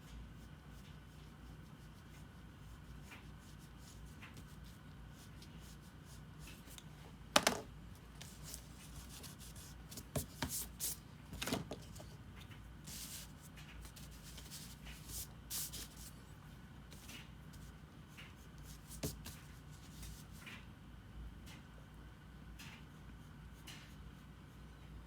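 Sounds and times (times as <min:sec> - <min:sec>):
light taps on paper: 0:08.2 - 0:16.1, 0:16.9 - 0:20.6.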